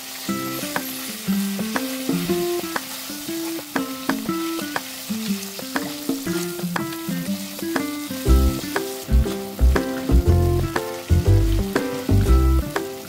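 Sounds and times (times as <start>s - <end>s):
beef sizzling in a wok: 0.0s - 13.0s
plucked background music: 0.3s - 13.0s
deep bass line: 8.3s - 12.6s.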